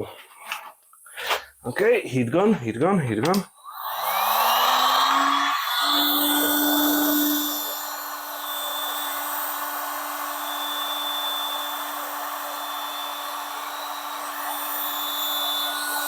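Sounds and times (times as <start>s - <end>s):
heat gun blowing air: 3.7s - 16.0s.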